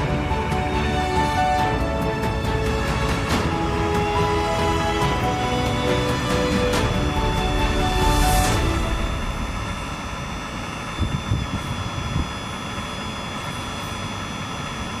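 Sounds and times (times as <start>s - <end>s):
machine hum: 0.0s - 15.0s
thin high whine: 4.1s - 15.0s.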